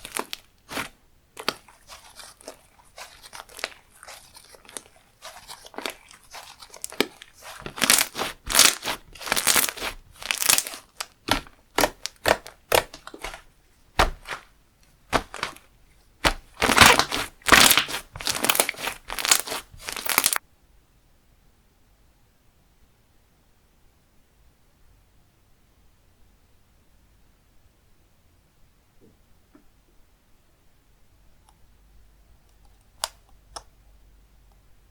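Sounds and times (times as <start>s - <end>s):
slime being squished by hand: 0.0s - 20.4s.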